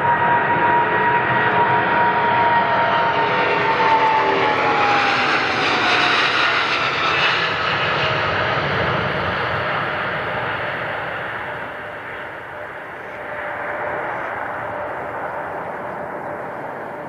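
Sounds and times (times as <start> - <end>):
jet airliner passing by: 0.0 - 17.0.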